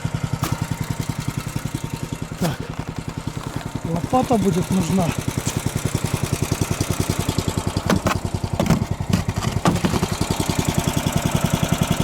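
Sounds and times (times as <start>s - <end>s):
small engine idling: 0.0s - 12.0s
sharp knocks and clatters: 0.4s - 3.8s, 7.8s - 10.2s.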